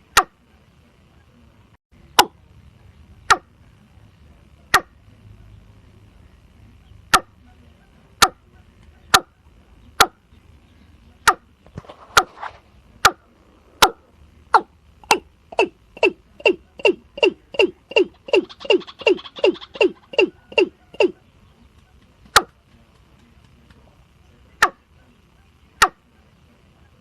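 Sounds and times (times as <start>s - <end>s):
bird calling hollow notes: 3.2s - 3.8s, 4.7s - 5.0s, 6.8s - 12.3s, 13.0s - 22.6s, 24.6s - 25.1s, 25.8s - 26.3s.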